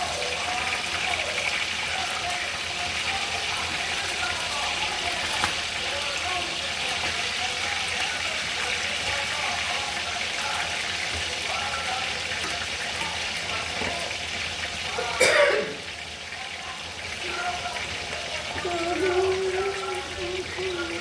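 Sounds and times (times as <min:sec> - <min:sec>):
water running from tap: 0:00.0 - 0:21.0
person clearing throat: 0:15.0 - 0:15.9.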